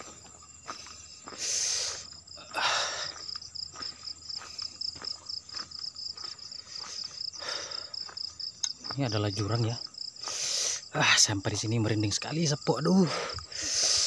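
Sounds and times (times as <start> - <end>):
footsteps through undergrowth: 0.0 - 2.2, 3.1 - 9.2
crickets chirping: 0.0 - 14.0.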